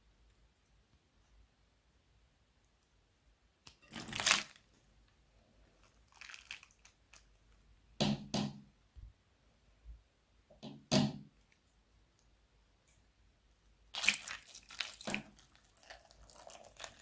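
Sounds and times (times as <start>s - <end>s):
slime squishing: 3.7s - 4.8s, 5.8s - 7.5s, 13.9s - 17.0s.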